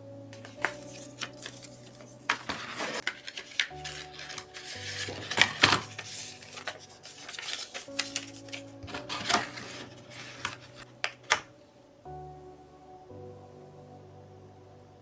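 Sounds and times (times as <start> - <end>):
soft background music: 0.0 - 15.0
rubbing packaging: 0.4 - 11.5.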